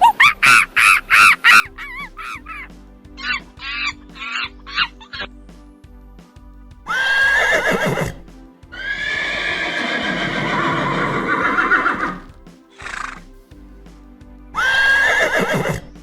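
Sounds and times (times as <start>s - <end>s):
soft background music: 0.0s - 16.0s
horse neighing: 8.8s - 12.2s, 12.8s - 13.2s.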